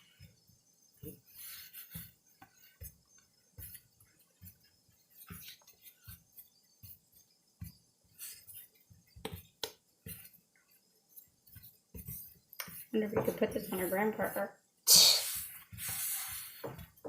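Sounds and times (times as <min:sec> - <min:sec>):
slime being kneaded and tapped: 0:09.2 - 0:09.9.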